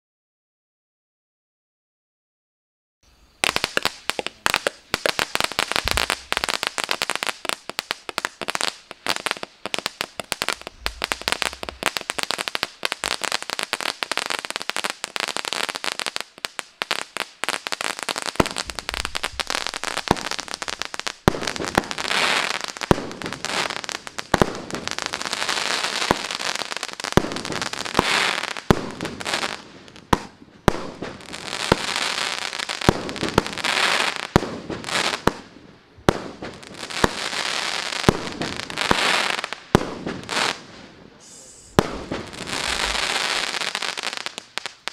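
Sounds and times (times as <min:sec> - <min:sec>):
sparks hissing and crackling: 0:03.2 - 0:44.9
firework cake crackling: 0:03.3 - 0:44.9
firework shots: 0:03.4 - 0:44.9.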